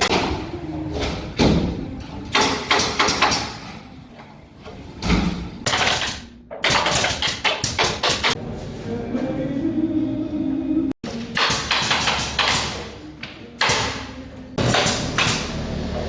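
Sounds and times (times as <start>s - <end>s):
nail gun shooting into plywood: 11.4s - 12.8s.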